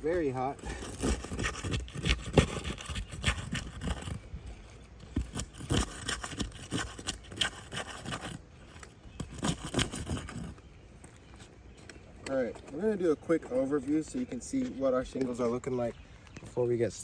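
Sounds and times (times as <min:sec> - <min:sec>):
metal tool scraping shingles: 0:00.4 - 0:04.2, 0:05.0 - 0:10.6.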